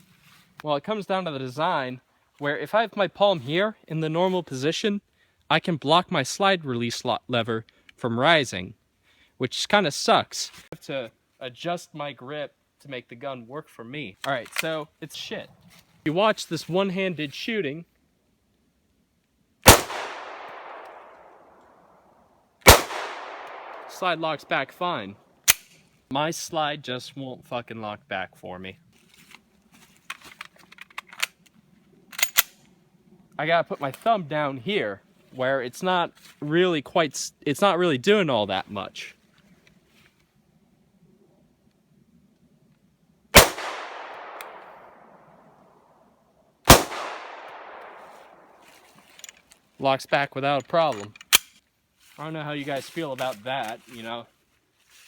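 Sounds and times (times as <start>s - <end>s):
pistol shots: 19.6s - 21.4s, 22.6s - 24.1s, 43.4s - 45.0s, 46.7s - 48.4s
gunshot echo: 19.7s - 21.3s, 22.6s - 24.3s, 43.4s - 45.1s, 46.7s - 48.5s.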